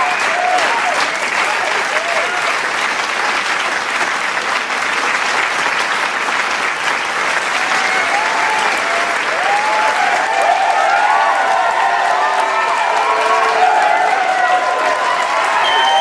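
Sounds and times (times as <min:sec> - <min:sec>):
voices cheering: 0:00.0 - 0:02.6, 0:07.4 - 0:16.0
crowd applauding: 0:00.0 - 0:16.0.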